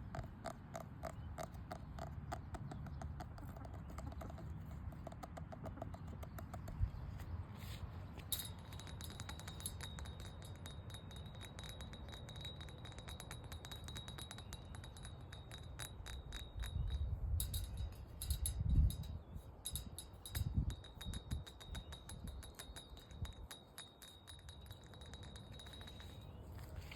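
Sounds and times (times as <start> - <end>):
rapid light tapping clicks: 0.0 - 6.9
wind rumble on microphone: 5.1 - 23.6.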